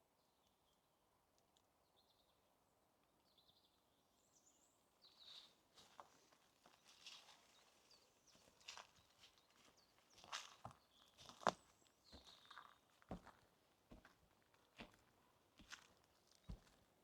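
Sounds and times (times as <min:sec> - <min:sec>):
faint forest ambience: 0:00.0 - 0:17.0
footsteps on forest path: 0:05.8 - 0:16.9.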